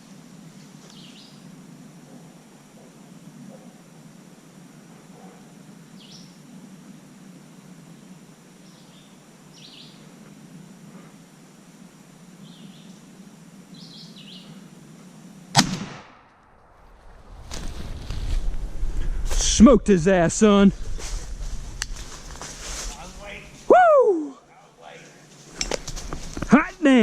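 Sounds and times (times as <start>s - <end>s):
small birds chirping: 0.8s - 1.5s, 5.9s - 6.4s, 7.9s - 10.2s, 12.4s - 13.1s, 13.7s - 14.8s
loud shotgun shot: 15.5s - 16.5s.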